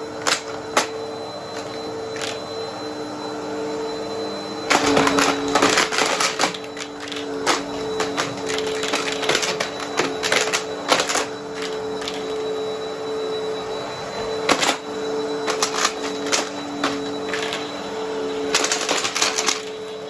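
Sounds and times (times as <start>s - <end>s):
vacuum cleaner motor hum: 0.0s - 20.0s
coins clattering through hose: 0.2s - 1.0s, 1.6s - 2.4s, 4.7s - 12.4s, 14.4s - 17.7s, 18.4s - 20.0s.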